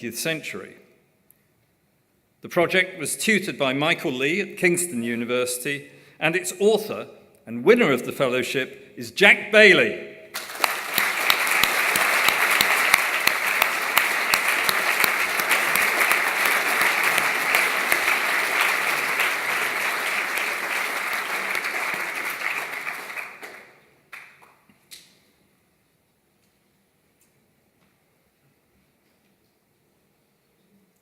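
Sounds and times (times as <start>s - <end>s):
audience applauding: 10.4s - 24.6s.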